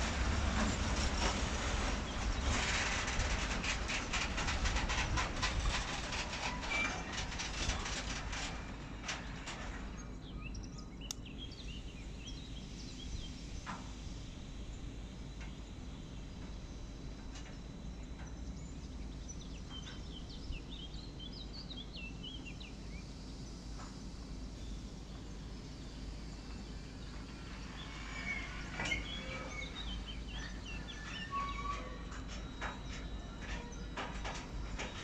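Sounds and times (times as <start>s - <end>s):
low background rumble: 0.0s - 35.0s
small birds chirping: 9.9s - 13.8s, 17.9s - 34.0s.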